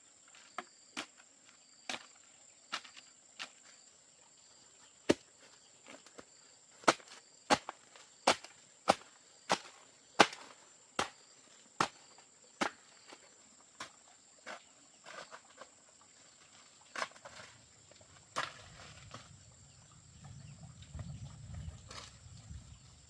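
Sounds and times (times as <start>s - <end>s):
sharp chopping strikes: 6.8s - 11.2s.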